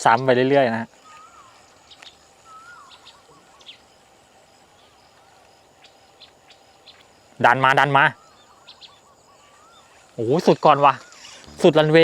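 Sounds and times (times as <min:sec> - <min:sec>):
low steady background hiss: 0:00.0 - 0:12.0
bird warbling whistled call: 0:01.0 - 0:03.9, 0:07.9 - 0:12.0.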